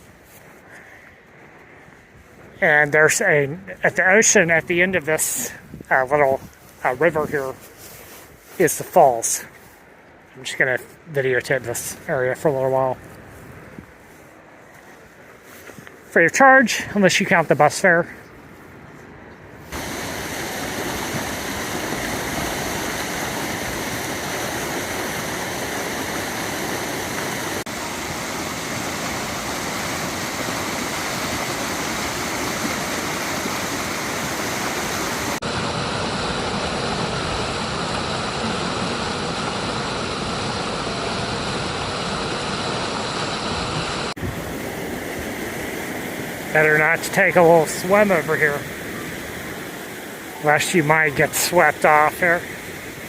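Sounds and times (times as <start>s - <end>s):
waterfall rushing: 19.7s - 53.0s.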